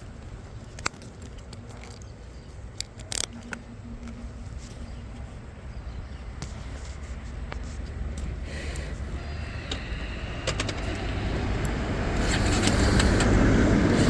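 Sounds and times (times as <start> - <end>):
sharp clicks and ticks: 0.6 - 4.2, 9.6 - 14.0.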